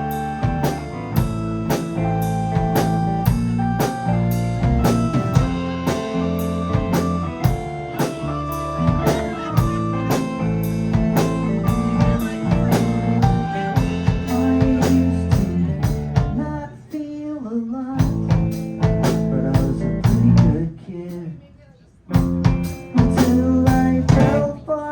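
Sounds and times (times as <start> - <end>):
live rock band playing: 0.0 - 16.4, 18.0 - 20.6, 22.1 - 24.6
bending guitar line: 0.0 - 16.5.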